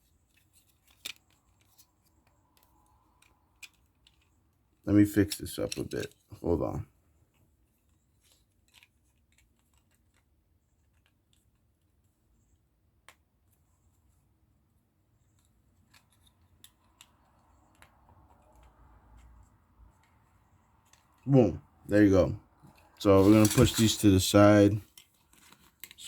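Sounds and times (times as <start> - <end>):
light rustling of plastic parts: 0.0 - 26.0
plastic parts clicking: 23.1 - 26.0.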